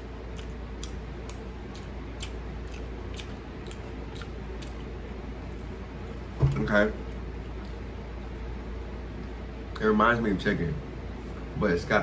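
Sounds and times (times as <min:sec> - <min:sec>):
crisp chewing crunches: 0:00.3 - 0:05.0.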